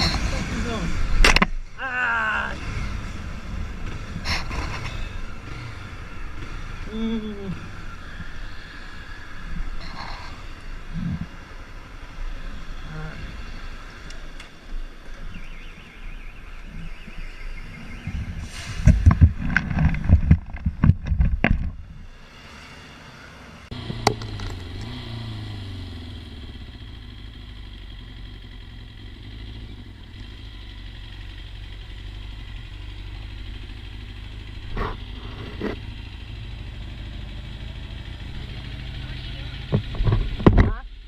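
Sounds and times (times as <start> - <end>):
motorcycle engine running: 2.4 - 18.3, 23.6 - 41.0.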